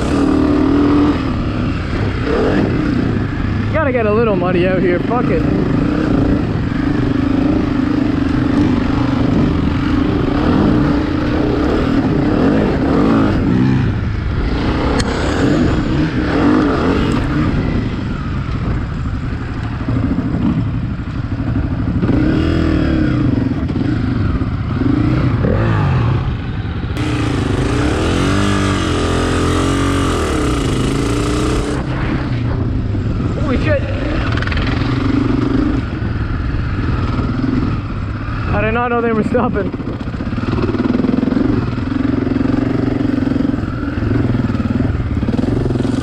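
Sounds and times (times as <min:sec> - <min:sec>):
dirt bike engine revving: 0:00.0 - 0:46.0
loud rushing noise: 0:25.4 - 0:35.6.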